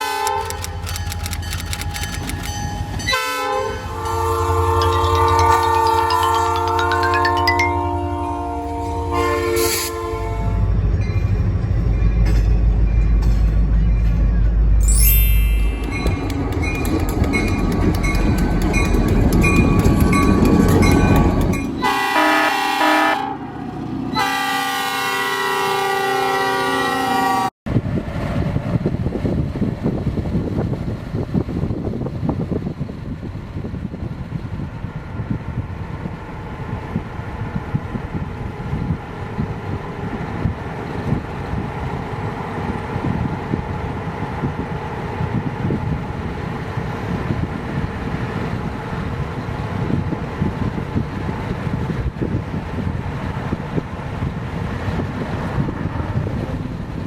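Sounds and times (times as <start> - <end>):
locomotive air horn blast: 0.0 - 0.6, 3.1 - 5.6, 7.8 - 10.7, 21.8 - 23.5, 24.1 - 27.5
freight train rumbling past: 0.0 - 57.0.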